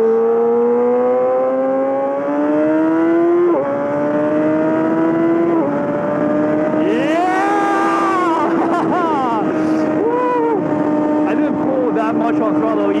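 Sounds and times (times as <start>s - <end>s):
motorcycle accelerating: 0.0s - 13.0s.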